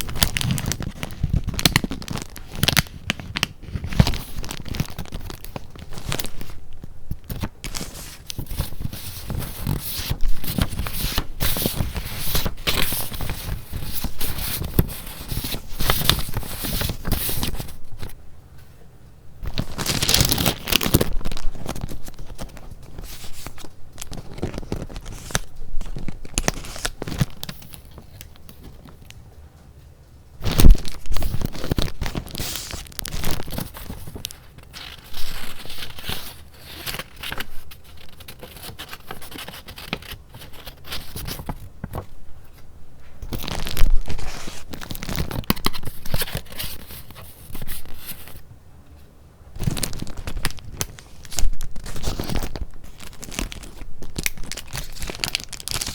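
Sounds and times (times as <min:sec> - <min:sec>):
paper rustling and crinkling: 0:00.0 - 0:18.2, 0:19.4 - 0:29.2, 0:30.4 - 0:48.5, 0:49.6 - 0:55.9.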